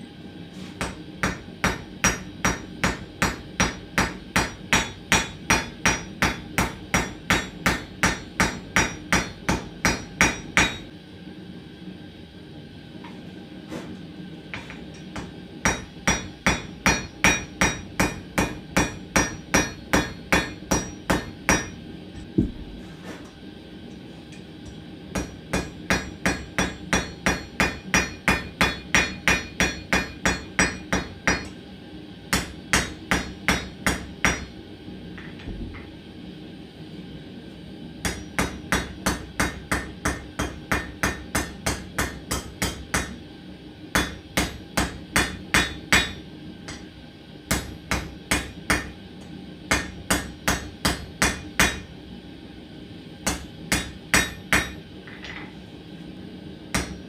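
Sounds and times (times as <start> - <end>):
hammer ringing on anvil: 0.8 - 10.9, 14.6 - 21.8, 25.2 - 31.6, 32.3 - 34.5, 38.0 - 43.2, 44.0 - 46.9, 47.5 - 48.9, 49.7 - 51.9, 53.3 - 55.5, 56.8 - 57.0.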